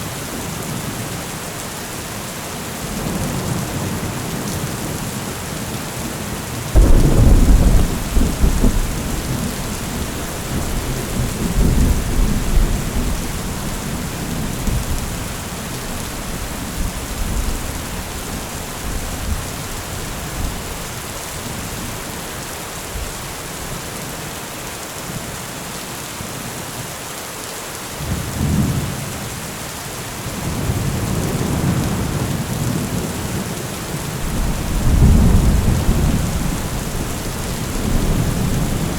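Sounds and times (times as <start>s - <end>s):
steady rain: 0.0s - 38.9s
thunder rumbling: 6.7s - 20.8s, 34.2s - 38.9s.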